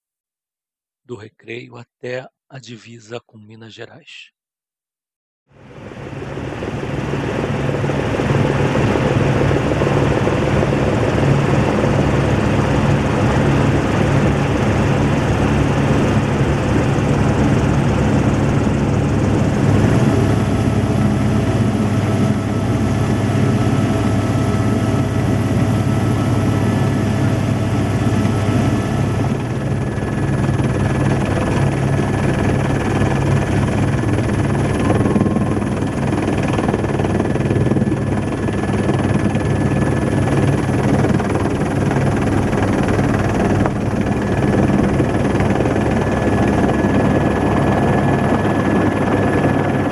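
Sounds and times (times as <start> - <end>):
helicopter rotor noise: 5.6 - 49.9
thin steady whining tones: 29.4 - 49.8.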